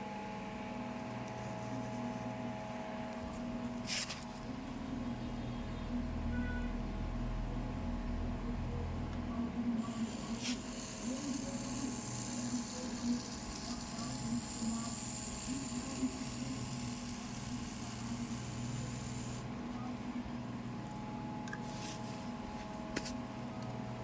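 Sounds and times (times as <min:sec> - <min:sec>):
small electric motor humming: 0:09.8 - 0:19.5.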